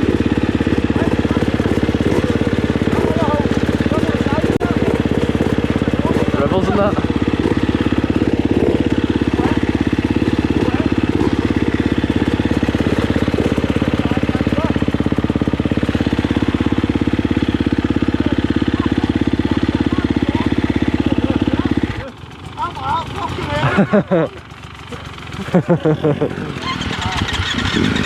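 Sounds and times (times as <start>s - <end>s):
dirt bike engine idling: 0.0s - 28.0s.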